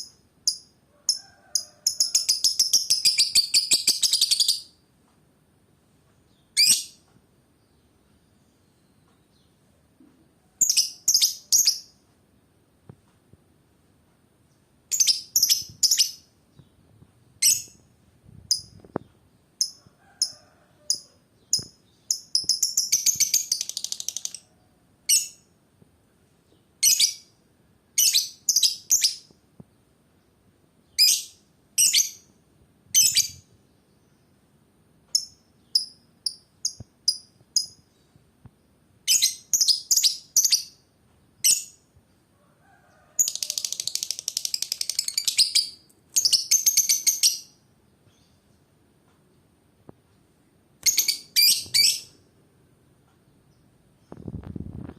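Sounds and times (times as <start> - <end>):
lovebird chirping: 0.0 - 4.8, 6.3 - 7.1, 10.6 - 12.0, 14.9 - 16.8, 17.4 - 17.9, 18.5 - 25.5, 26.8 - 27.3, 28.0 - 29.3, 30.8 - 32.3, 32.9 - 34.2, 35.1 - 38.1, 39.0 - 41.8, 43.2 - 48.5, 50.8 - 52.2
lovebird rapid chattering: 21.6 - 24.5, 43.2 - 47.3.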